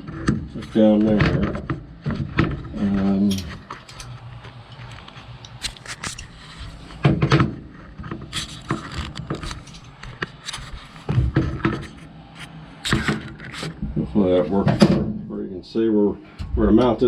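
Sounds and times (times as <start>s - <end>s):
camera handling clicks and rubs: 3.6s - 6.8s, 8.2s - 11.1s.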